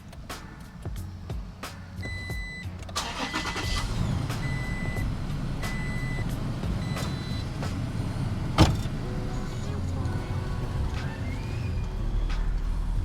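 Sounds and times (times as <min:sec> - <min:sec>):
high warning beep: 0:02.0 - 0:02.7, 0:05.7 - 0:07.5
engine cranking and running: 0:02.8 - 0:13.0.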